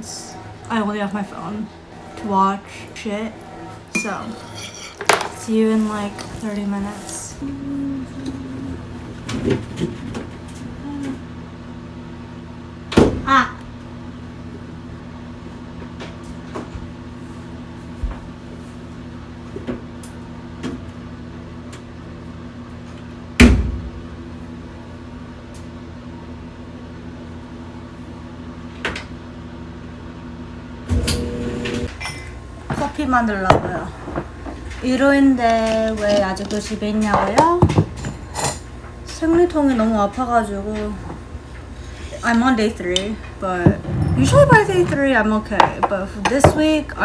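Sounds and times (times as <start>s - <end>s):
appliance electrical hum: 0.0s - 47.0s.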